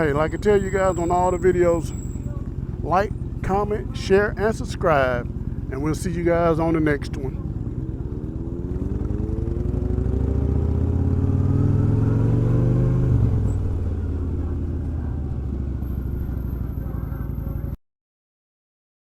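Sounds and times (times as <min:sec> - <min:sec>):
motorcycle engine accelerating: 0:06.6 - 0:17.8.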